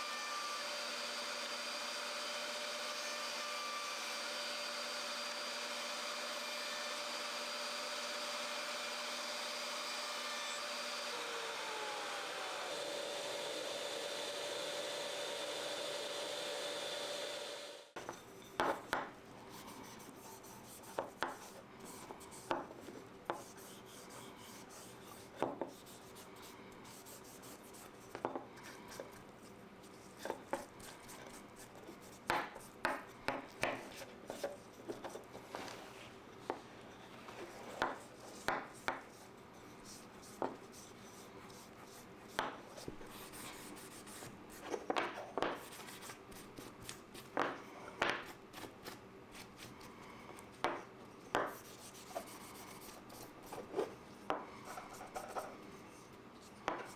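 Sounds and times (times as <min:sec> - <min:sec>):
power tool whining: 0:00.0 - 0:17.9.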